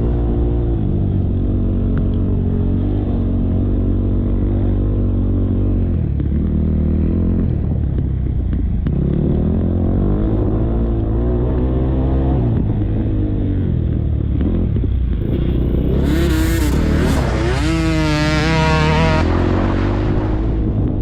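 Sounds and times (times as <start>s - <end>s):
motocross bike engine revving: 15.2s - 21.0s.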